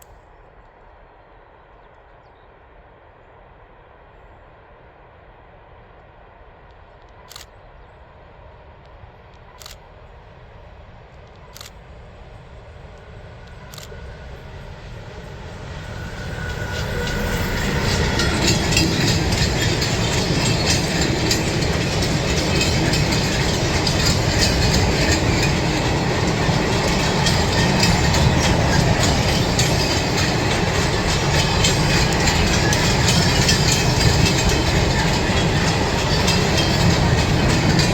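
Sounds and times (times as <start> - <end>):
train passing: 0.0 - 37.9
wheels clattering on rails: 12.8 - 37.9.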